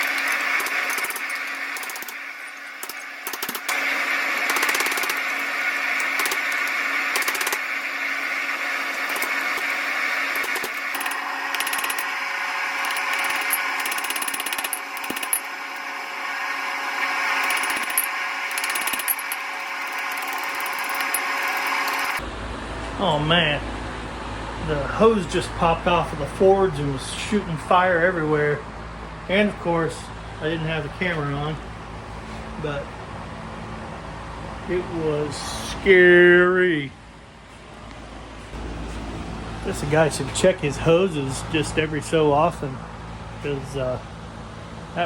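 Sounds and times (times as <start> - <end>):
tools clinking on steel: 0.0 - 3.8, 10.4 - 12.1, 12.8 - 15.9, 17.4 - 22.2
gas forge burner rushing: 0.0 - 22.2.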